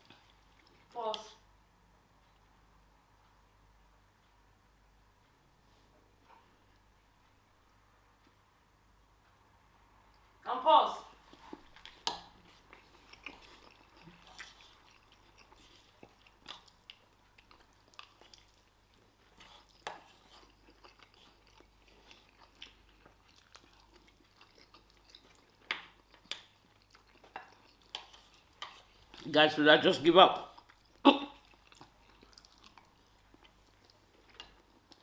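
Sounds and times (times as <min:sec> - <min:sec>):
people chewing food: 0:00.0 - 0:01.4, 0:11.1 - 0:35.0.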